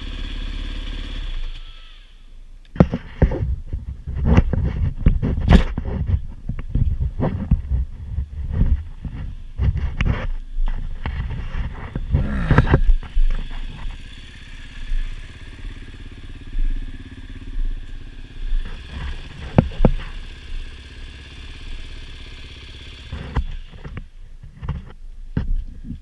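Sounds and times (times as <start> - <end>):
dirt bike engine running: 0.0 - 24.9
gusty noise: 3.2 - 20.2.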